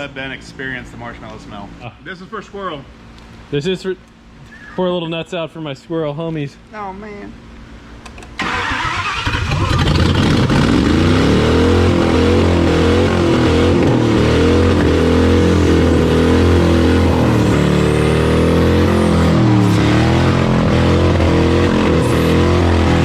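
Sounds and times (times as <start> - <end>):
car engine revving: 8.4 - 23.0.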